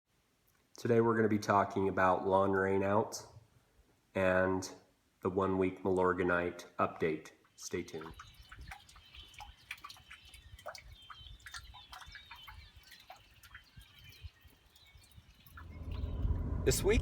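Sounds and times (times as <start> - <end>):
birds chirping: 7.4 - 17.0
faint rain dripping: 7.4 - 17.0.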